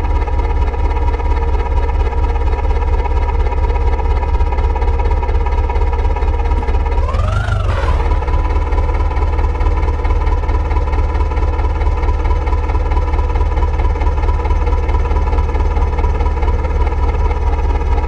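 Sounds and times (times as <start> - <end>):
diesel engine rumbling: 6.4 - 17.4
engine whine: 6.5 - 15.0.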